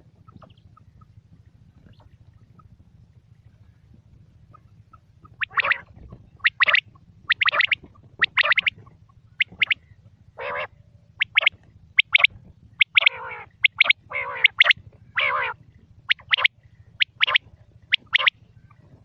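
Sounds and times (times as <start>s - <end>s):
quail calling: 4.5s - 18.9s.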